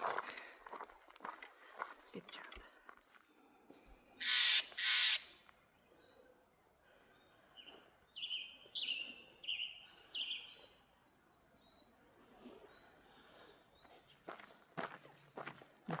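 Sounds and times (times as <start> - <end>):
downward-slurred bird calls: 4.2 - 6.4
high bird chirps: 7.2 - 12.0.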